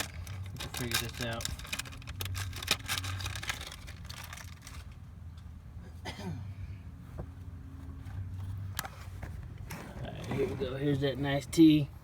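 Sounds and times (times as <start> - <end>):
bag crinkling and rustling: 0.0 - 5.0.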